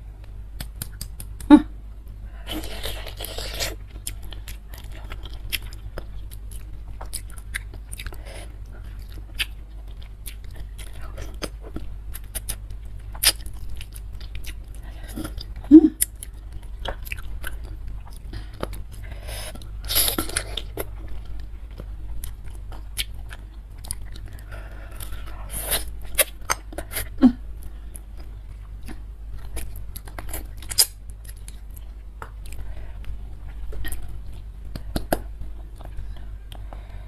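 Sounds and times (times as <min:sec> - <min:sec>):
wet mouth clicks: 0:00.6 - 0:01.5
chewing and biting: 0:02.4 - 0:27.1, 0:28.0 - 0:36.7.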